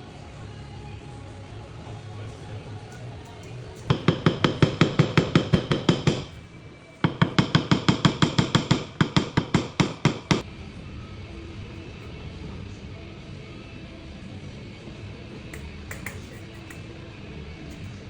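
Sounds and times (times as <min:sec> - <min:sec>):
quick metal taps on steel panel: 0:15.5 - 0:16.8.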